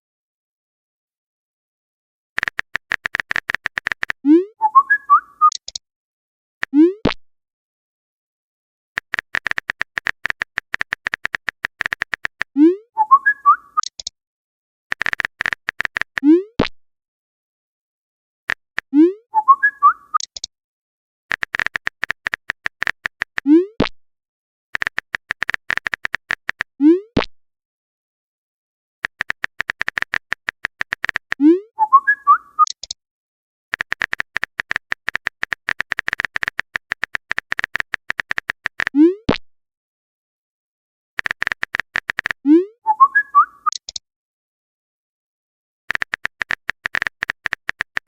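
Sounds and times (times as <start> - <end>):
keyboard typing clicks: 2.4 - 4.2, 5.4 - 5.8, 9.0 - 12.5, 13.2 - 14.1, 14.9 - 16.3, 20.1 - 20.5, 21.3 - 23.5, 24.8 - 26.7, 29.0 - 31.4, 32.6 - 33.0, 33.7 - 39.0, 41.2 - 42.4, 43.6 - 44.0, 45.9 - 48.0
chirping message tone: 4.3 - 5.6, 12.6 - 14.0, 19.0 - 20.3, 31.4 - 32.8, 42.5 - 43.9.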